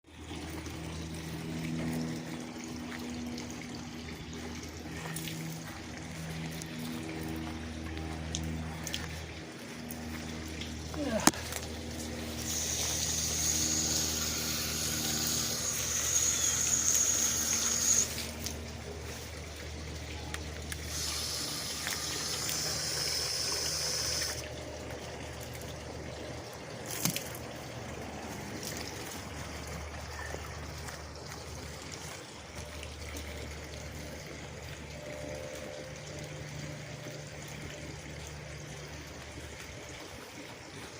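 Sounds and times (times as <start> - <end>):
fountain water trickling: 0.1 - 40.9
low steady hum: 0.1 - 40.9
high even whine: 0.8 - 19.4.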